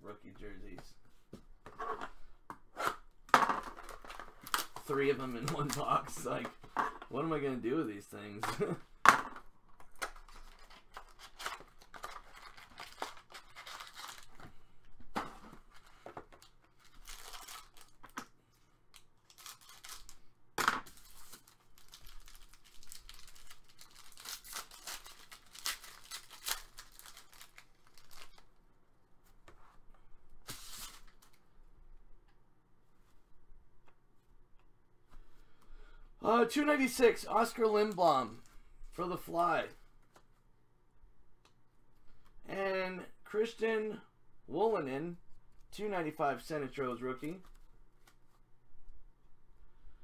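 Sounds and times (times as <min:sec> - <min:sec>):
wrappers tearing and crinkling: 0:10.2 - 0:14.4, 0:16.8 - 0:18.1, 0:19.0 - 0:20.2, 0:20.9 - 0:28.4.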